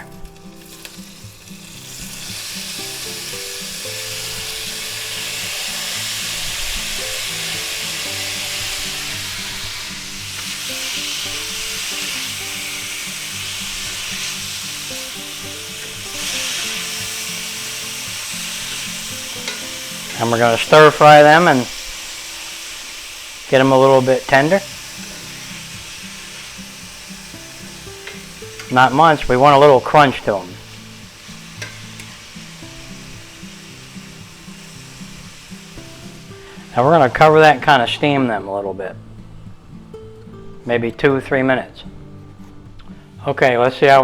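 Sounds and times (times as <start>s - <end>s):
vegetables sizzling in hot oil: 0.0s - 37.9s
soft background music: 0.0s - 44.0s.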